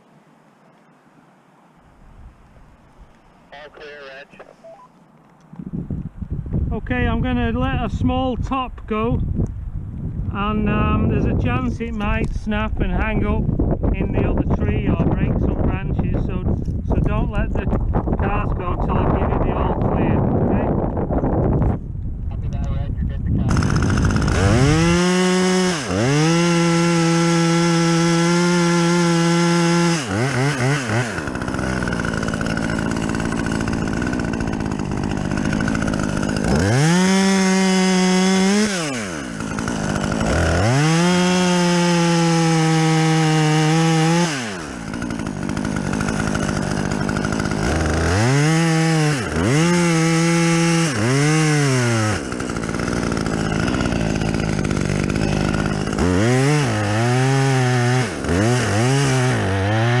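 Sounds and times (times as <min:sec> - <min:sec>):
chainsaw revving and cutting wood: 0:23.5 - 1:00.0.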